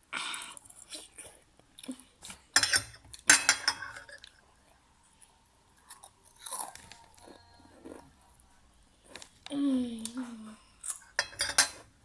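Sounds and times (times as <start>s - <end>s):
utensils clinking on a dish: 2.6s - 4.2s, 11.2s - 11.9s.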